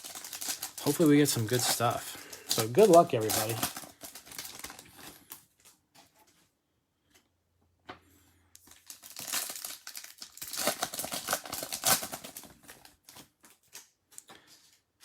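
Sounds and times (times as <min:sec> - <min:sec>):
plastic wrapping tearing and crinkling: 0:00.0 - 0:05.6, 0:08.6 - 0:14.0.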